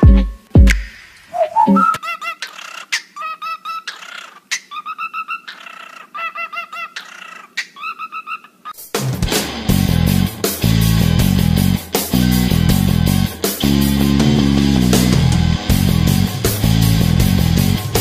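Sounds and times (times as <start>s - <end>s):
parrot chirping: 1.3s - 8.8s
electric guitar and bass music: 9.0s - 18.0s.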